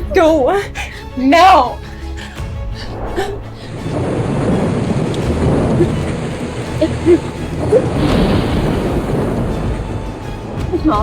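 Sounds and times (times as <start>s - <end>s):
low thunder rumble: 2.6s - 11.0s
rain falling: 3.6s - 11.0s.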